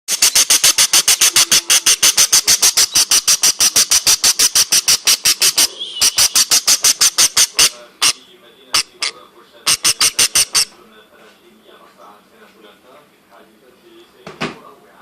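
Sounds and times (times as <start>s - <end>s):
budgie squeaking: 0.1s - 10.8s.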